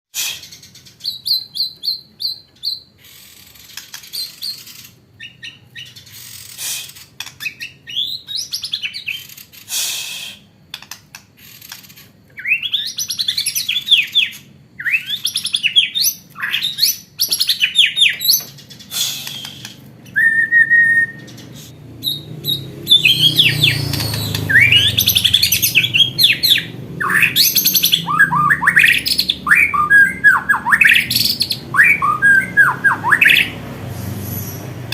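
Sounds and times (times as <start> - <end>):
bird singing whistled phrases: 12.4 - 18.4, 19.0 - 33.6.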